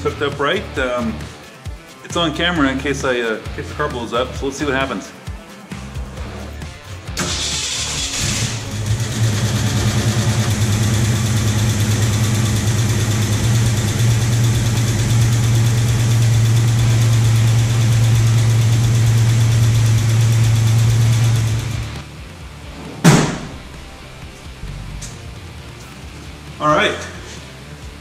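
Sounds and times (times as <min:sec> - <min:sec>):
car engine starting and idling: 0:07.1 - 0:26.5.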